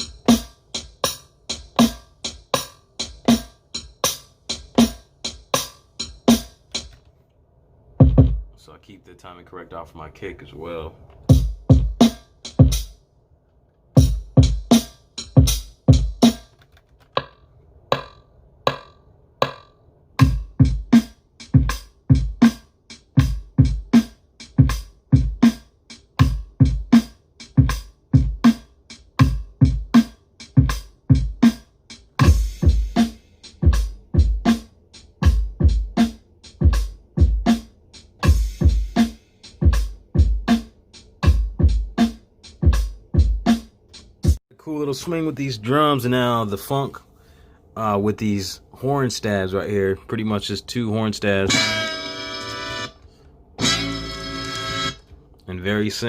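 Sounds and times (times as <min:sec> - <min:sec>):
boom-bap drum loop: 0:00.0 - 0:07.0, 0:08.0 - 0:08.6, 0:11.2 - 0:13.0, 0:14.0 - 0:44.4, 0:51.5 - 0:52.9, 0:53.6 - 0:55.0.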